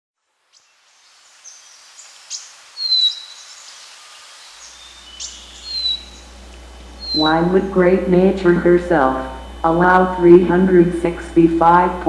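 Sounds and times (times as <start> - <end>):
faint outdoor hiss: 0.2 - 12.0
birds chirping and whistling: 0.5 - 7.7
low hum: 4.4 - 12.0.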